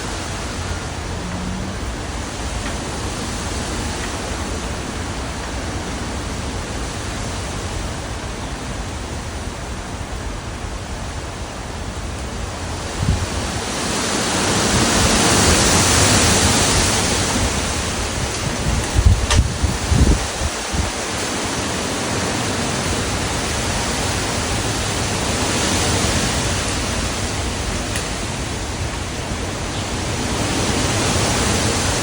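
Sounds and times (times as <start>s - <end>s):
wind thumping microphone: 0.0s - 6.0s, 15.2s - 21.1s
strong wind gusts: 0.0s - 32.0s.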